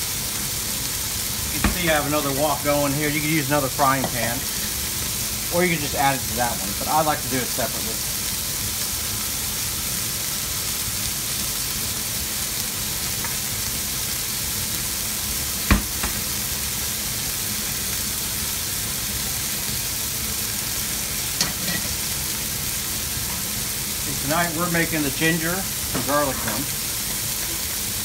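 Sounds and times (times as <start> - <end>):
steak sizzling in a pan: 0.0 - 28.0
sharp knock: 15.7 - 16.2.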